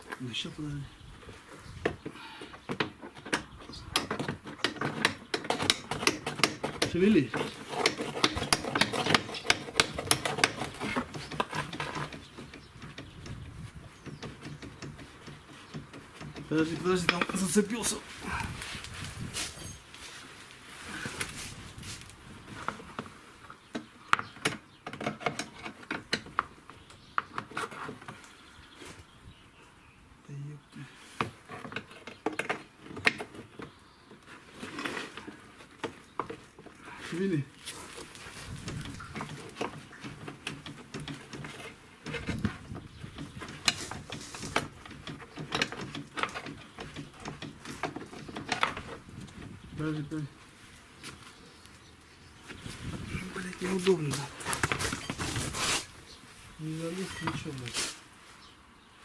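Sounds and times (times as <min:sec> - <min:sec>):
metallic clicks and knocks: 0:02.7 - 0:13.4, 0:23.7 - 0:26.5, 0:43.2 - 0:49.5
metal parts clicking and knocking: 0:43.2 - 0:49.0.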